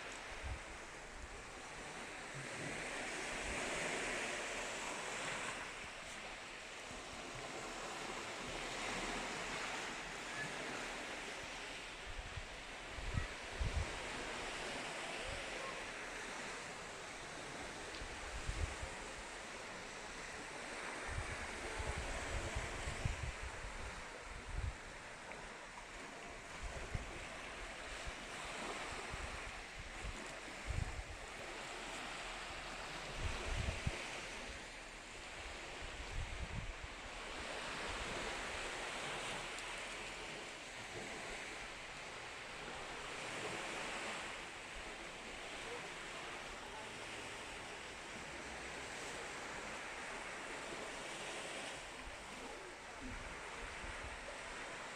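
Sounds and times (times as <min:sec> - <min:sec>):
sea surf washing onto shore: 0:00.0 - 0:54.9
wind rumble on microphone: 0:12.1 - 0:14.6, 0:20.9 - 0:25.0, 0:26.4 - 0:34.6, 0:35.2 - 0:39.4.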